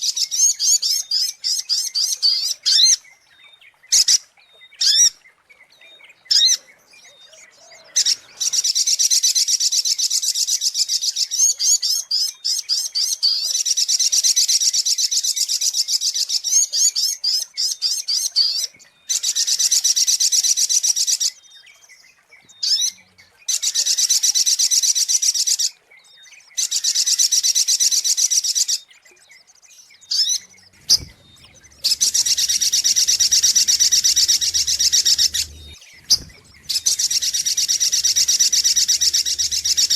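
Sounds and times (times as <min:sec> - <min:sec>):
songbird twittering chirps: 0:15.2 - 0:39.9.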